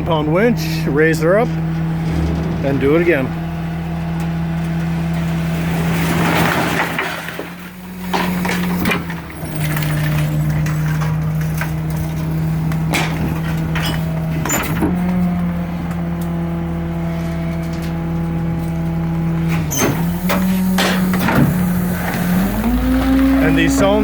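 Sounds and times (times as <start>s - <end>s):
metal clanks and bangs: 0.0s - 24.0s
truck diesel engine running: 0.0s - 24.0s
trash tipping rush: 0.8s - 15.8s.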